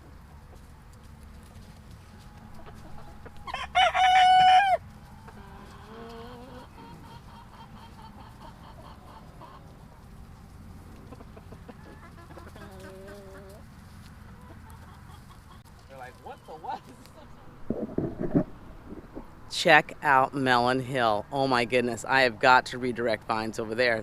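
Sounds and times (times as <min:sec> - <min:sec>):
hens clucking: 0:01.4 - 0:19.5
rooster crowing: 0:03.2 - 0:04.8.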